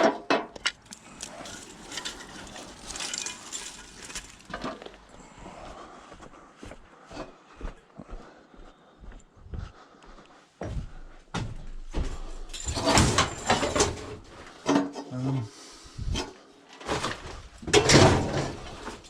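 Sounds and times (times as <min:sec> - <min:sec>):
scrap metal clattering and clanking: 0:00.0 - 0:05.2, 0:12.1 - 0:15.1, 0:16.0 - 0:19.0.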